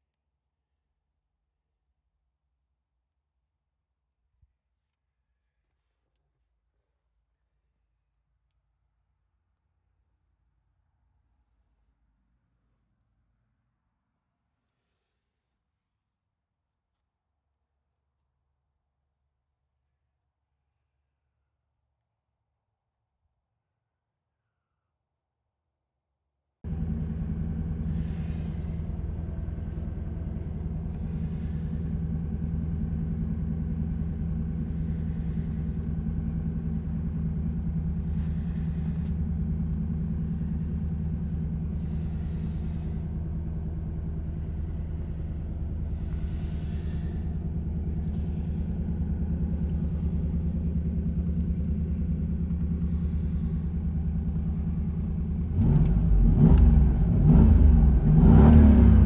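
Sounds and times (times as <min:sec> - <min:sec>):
car engine idling and revving: 0:26.7 - 0:59.0.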